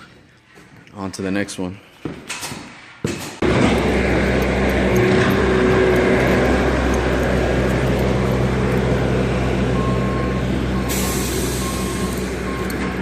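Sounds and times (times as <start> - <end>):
road noise: 3.4 - 13.0
vehicle engine hum: 3.4 - 13.0
short beeps: 9.7 - 13.0.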